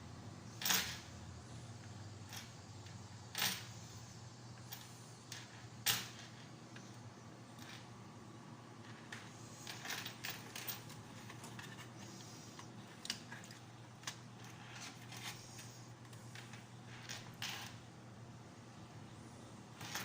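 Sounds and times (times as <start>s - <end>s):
faint steady hum: 0.0s - 20.0s
small parts clicking and tapping: 8.8s - 17.8s.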